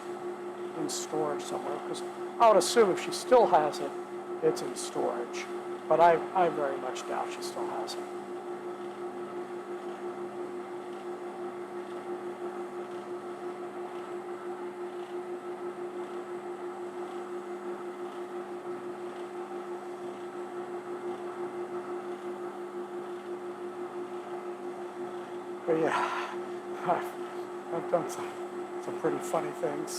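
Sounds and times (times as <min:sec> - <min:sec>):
workshop machine motor drone: 0:00.0 - 0:29.9.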